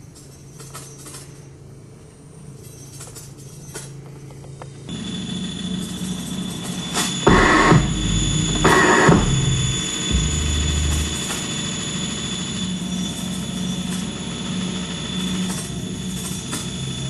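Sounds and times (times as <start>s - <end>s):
low droning hum: 4.9s - 17.0s
thin high whine: 4.9s - 17.0s.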